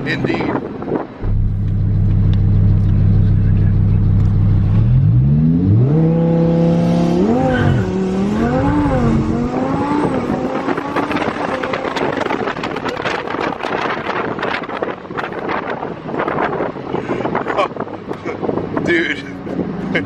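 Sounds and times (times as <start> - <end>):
wind and road noise: 0.0 - 20.0
sports car engine revving: 1.2 - 13.8.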